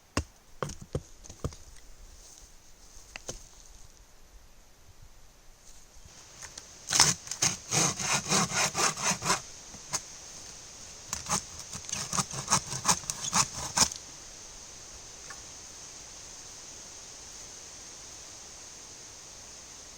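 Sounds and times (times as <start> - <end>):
hand saw cutting wood: 6.9 - 10.0, 11.2 - 14.0.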